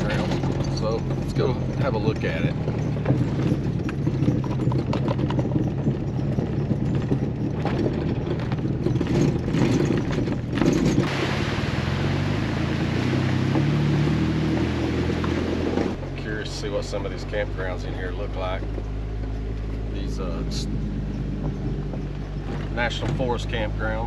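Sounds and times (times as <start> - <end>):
engine and tyres rumbling: 0.0 - 24.0
gravel crackling and rattling: 0.0 - 24.0.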